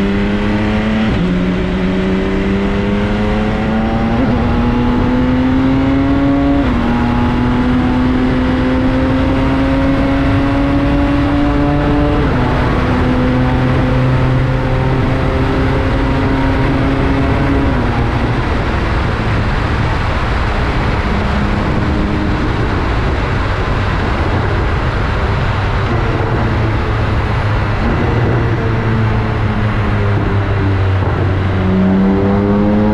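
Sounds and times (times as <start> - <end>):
road and wind noise: 0.0 - 32.9
motorcycle engine running: 6.7 - 32.9.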